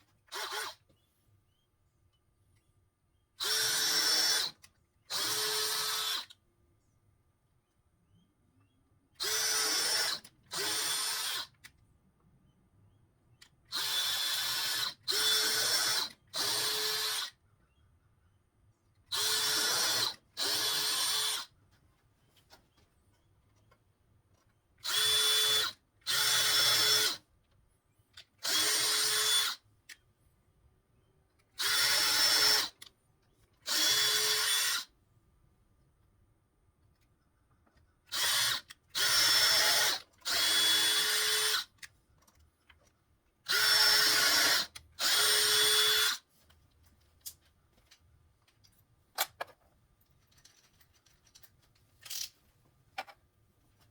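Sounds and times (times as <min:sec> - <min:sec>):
power drill driving screws: 0:00.3 - 0:00.8, 0:03.4 - 0:06.3, 0:09.2 - 0:11.5, 0:13.7 - 0:17.3, 0:19.1 - 0:21.5, 0:24.8 - 0:27.2, 0:28.4 - 0:29.6, 0:31.6 - 0:32.8, 0:33.7 - 0:34.9, 0:38.1 - 0:41.7, 0:43.5 - 0:46.2.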